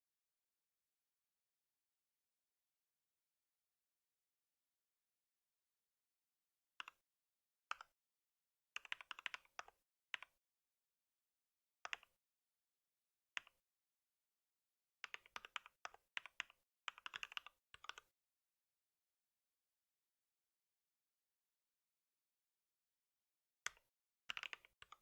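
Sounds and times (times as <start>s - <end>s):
typing on computer keyboard: 8.8s - 10.3s, 15.0s - 18.1s, 24.3s - 25.0s.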